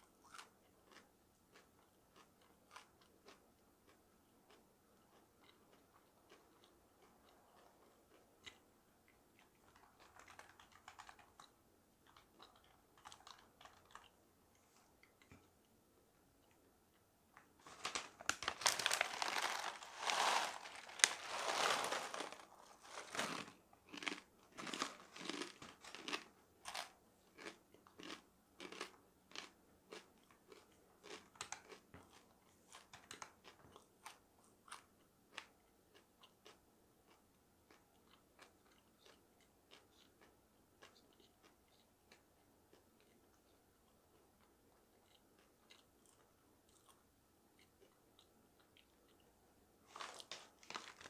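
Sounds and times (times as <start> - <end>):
chewing crunchy dried food: 0.0 - 15.8, 17.6 - 51.0.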